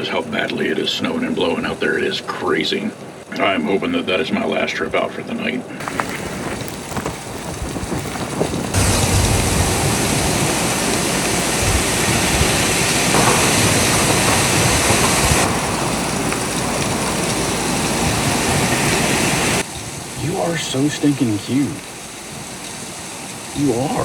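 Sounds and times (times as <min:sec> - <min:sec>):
wind buffeting microphone: 0:05.8 - 0:24.0.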